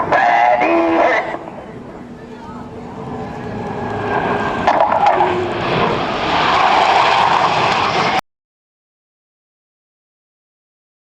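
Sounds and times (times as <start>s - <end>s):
jet aircraft flying past: 0.0s - 8.2s.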